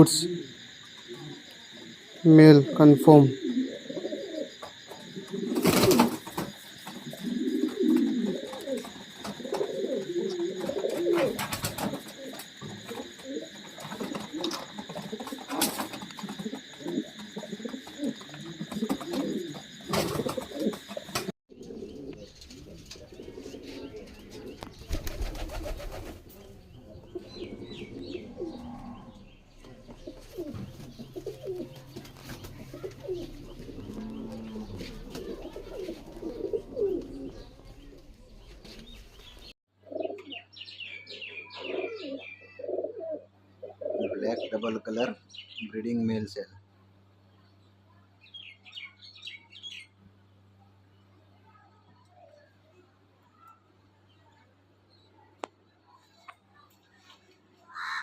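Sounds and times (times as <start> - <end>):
steady high-pitched hum: 0.0 - 39.6
pigeons cooing: 0.0 - 40.4, 41.1 - 45.1.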